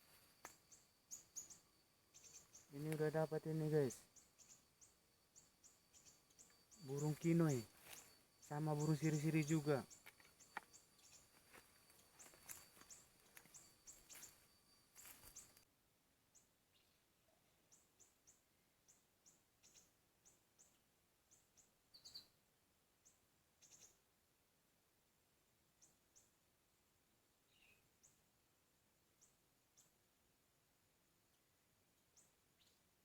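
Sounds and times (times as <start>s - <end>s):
high whine and hiss: 0.0s - 9.9s
faint high bird chirps: 0.0s - 15.7s, 16.3s - 22.4s, 23.0s - 24.1s, 27.4s - 28.2s, 32.0s - 33.0s.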